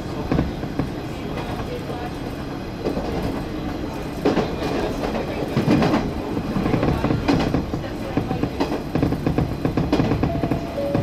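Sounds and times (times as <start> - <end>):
railcar rumbling: 0.0 - 11.0.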